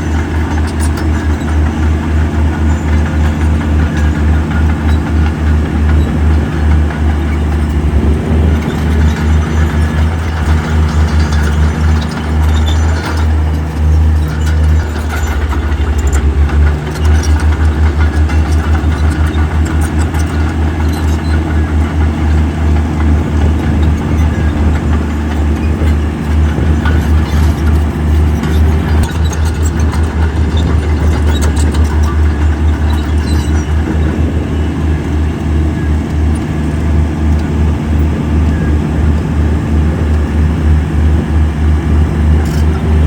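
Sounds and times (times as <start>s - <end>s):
light metal clanks: 0.0s - 34.4s
heavy diesel engine running: 0.0s - 43.0s.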